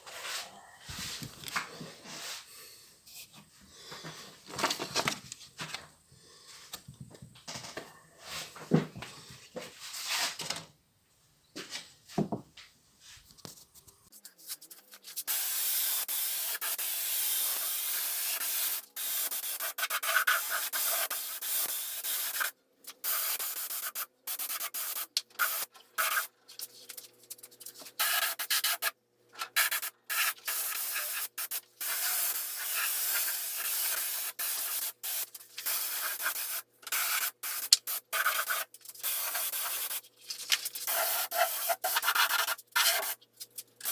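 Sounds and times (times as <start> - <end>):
sanding hiss: 15.2 - 26.3, 29.6 - 40.0.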